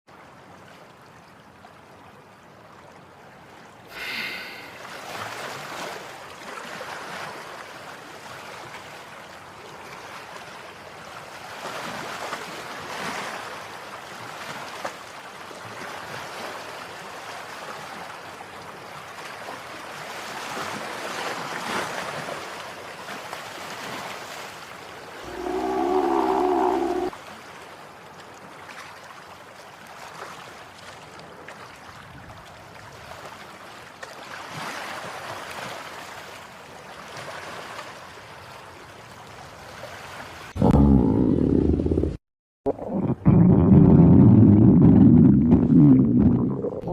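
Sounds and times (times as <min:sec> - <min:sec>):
ocean waves washing in: 0:19.3 - 0:27.2.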